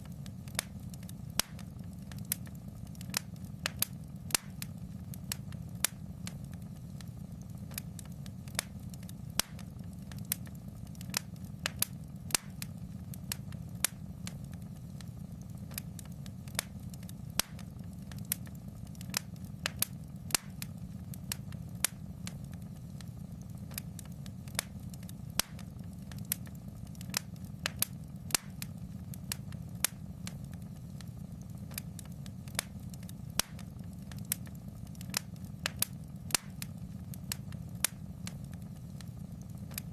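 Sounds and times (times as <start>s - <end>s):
fire crackling and popping: 0.0s - 39.9s
low rumble of burning fire: 0.0s - 39.9s.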